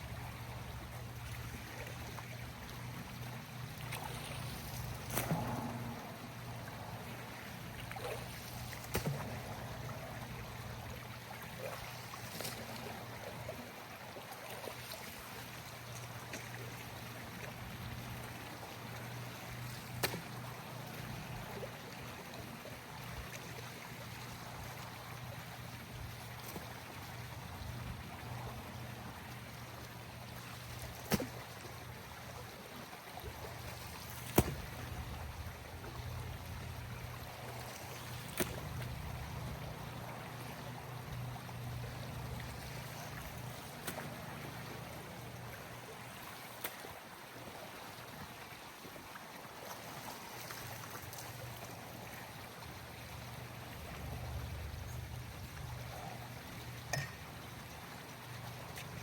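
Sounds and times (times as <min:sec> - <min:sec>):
pool water trickling and sloshing: 0:00.0 - 0:59.0.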